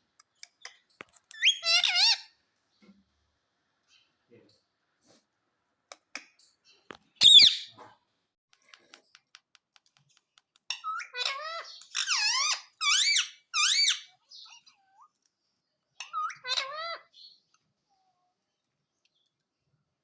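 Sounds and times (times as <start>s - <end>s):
parrot squeaky calls: 1.2s - 2.4s, 7.2s - 7.8s, 10.7s - 15.1s, 16.0s - 17.4s
parrot squawk: 1.4s - 2.3s, 7.2s - 7.8s, 10.8s - 15.1s, 16.0s - 17.1s.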